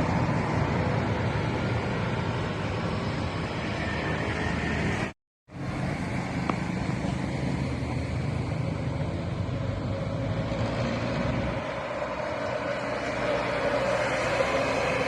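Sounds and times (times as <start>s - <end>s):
road noise: 0.0s - 15.0s
traffic diesel engine rumble: 0.0s - 15.0s.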